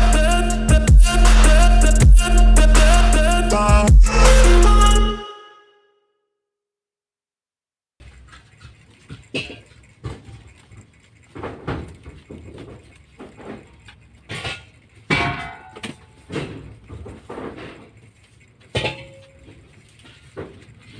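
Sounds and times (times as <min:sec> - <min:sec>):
knocks and rustling handling: 0:08.0 - 0:20.9.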